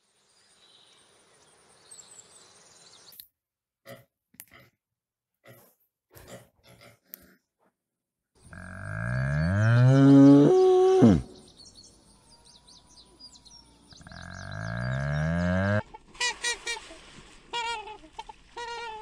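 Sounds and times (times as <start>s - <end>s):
small birds chirping: 8.4s - 15.4s
cow mooing: 8.5s - 11.3s, 14.0s - 15.8s.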